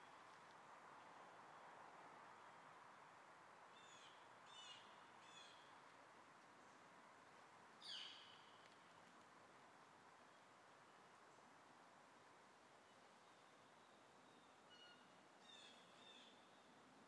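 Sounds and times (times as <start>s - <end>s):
low steady hiss: 0.0s - 17.0s
faint bird chirps: 12.8s - 16.7s.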